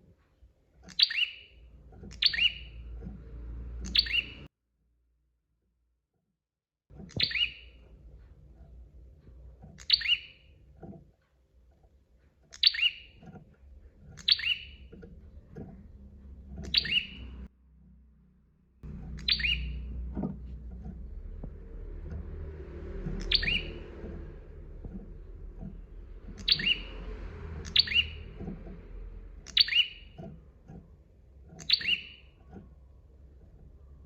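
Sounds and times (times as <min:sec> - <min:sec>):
bird chirping: 0:00.8 - 0:04.5, 0:07.0 - 0:08.8, 0:09.6 - 0:11.0, 0:12.5 - 0:17.5, 0:18.8 - 0:34.0
low background rumble: 0:06.9 - 0:34.0.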